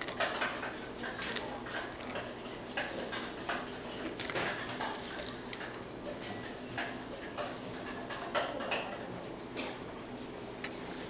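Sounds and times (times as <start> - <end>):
chewing crispy fried food: 0.0 - 6.4.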